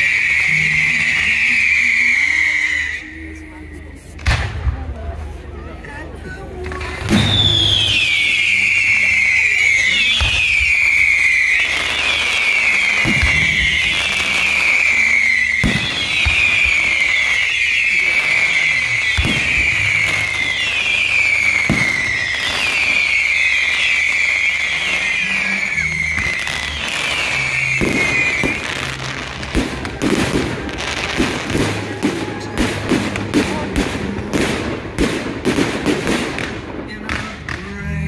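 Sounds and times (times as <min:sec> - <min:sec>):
firework cracks and bangs: 0:00.0 - 0:02.5, 0:04.2 - 0:04.9, 0:06.6 - 0:38.0
firework whistles: 0:00.0 - 0:03.9, 0:07.0 - 0:37.0.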